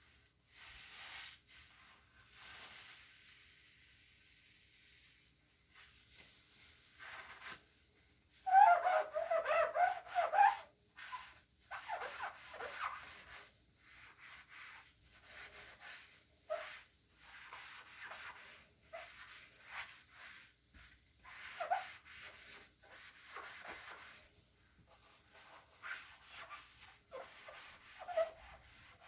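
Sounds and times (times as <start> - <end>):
cloth rubbing and squeaking: 7.0 - 7.6, 8.4 - 24.3, 24.9 - 29.0.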